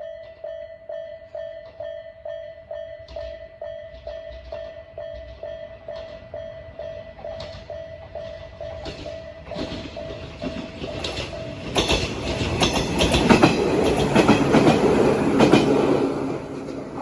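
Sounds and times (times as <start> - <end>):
level crossing electronic alarm: 0.0 - 13.4
train wheels clacking over joints: 3.0 - 17.0.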